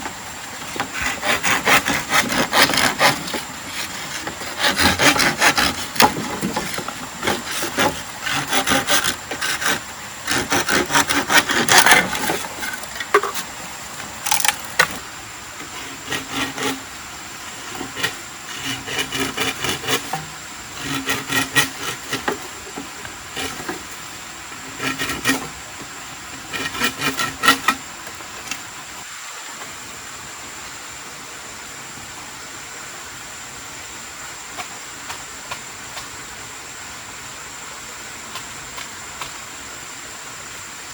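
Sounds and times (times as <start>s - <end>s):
hand saw cutting wood: 0.0s - 13.6s, 14.2s - 15.0s, 15.6s - 25.6s, 26.3s - 27.8s
steady background hiss: 0.0s - 40.9s.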